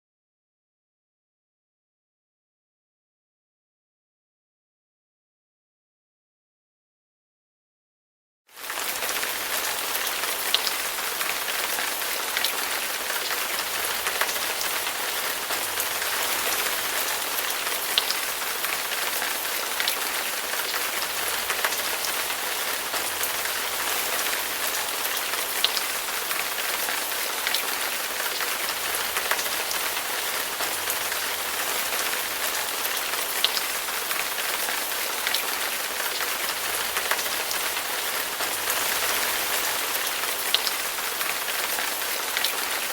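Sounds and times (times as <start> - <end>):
heavy rain falling: 8.6 - 42.9.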